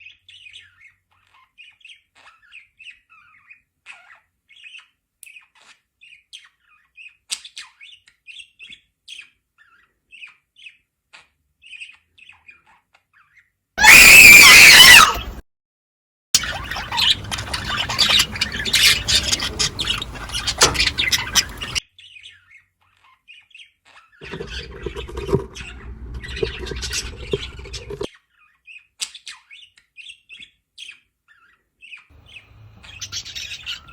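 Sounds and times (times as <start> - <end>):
loud budgerigar squawk: 13.8 - 15.4, 16.4 - 21.8, 31.4 - 33.9
budgerigars chattering: 16.4 - 21.8, 24.2 - 28.1, 32.2 - 33.9
budgerigars chirping: 16.4 - 22.4, 24.2 - 28.1, 30.8 - 33.9.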